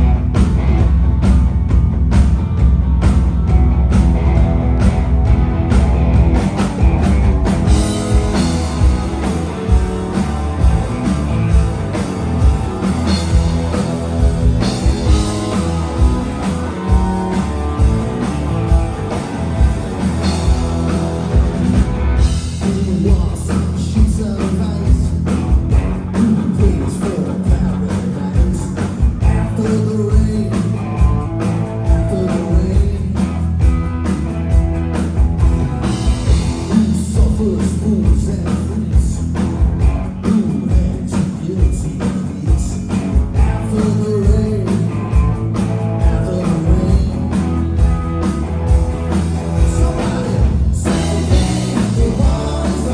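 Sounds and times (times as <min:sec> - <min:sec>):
drum beat: 0:00.0 - 0:23.4, 0:46.0 - 0:52.9
live rock band playing: 0:00.0 - 0:52.9
person singing: 0:49.6 - 0:52.9.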